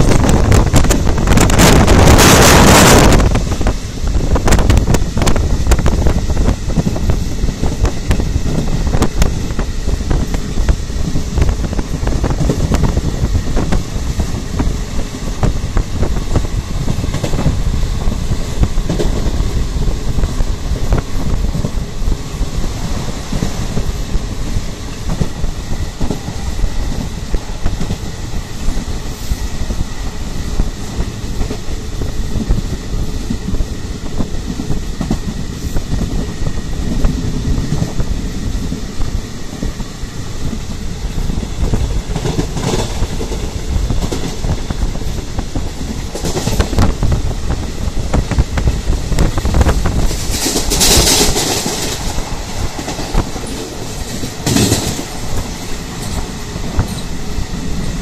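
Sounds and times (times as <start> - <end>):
train wheels rumbling on rails: 0.0 - 58.0
wind buffeting microphone: 0.0 - 58.0.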